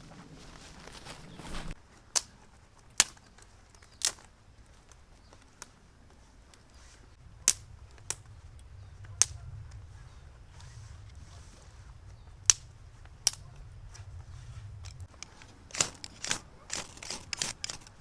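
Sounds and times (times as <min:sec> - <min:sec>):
short rustle: 0:00.0 - 0:18.0
sharp cracks: 0:03.0 - 0:04.3, 0:07.2 - 0:18.0.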